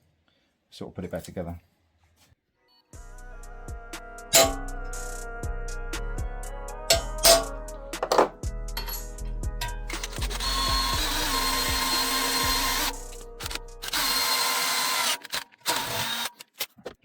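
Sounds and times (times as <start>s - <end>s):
background music: 2.9s - 15.0s
power tool working metal: 9.9s - 16.6s.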